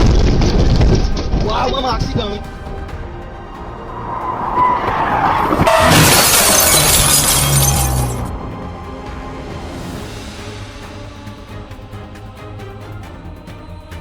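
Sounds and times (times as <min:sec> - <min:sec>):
background music: 0:00.0 - 0:14.0
tires skidding: 0:03.0 - 0:08.6
vehicle crash with shattering glass: 0:04.5 - 0:08.4.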